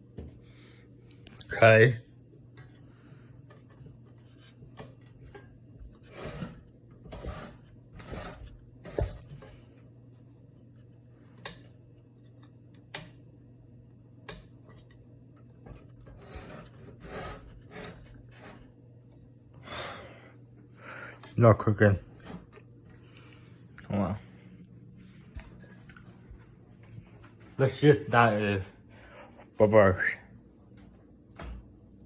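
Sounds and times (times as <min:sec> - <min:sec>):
ceiling fan motor hum: 0:00.0 - 0:32.0
rubbing and scraping: 0:04.2 - 0:09.5, 0:15.7 - 0:18.8.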